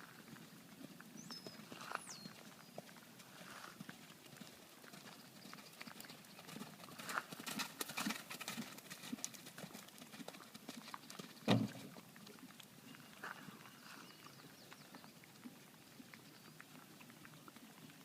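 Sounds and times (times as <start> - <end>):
horse hooves clip-clopping: 0.0 - 18.0
low thump: 11.5 - 11.8.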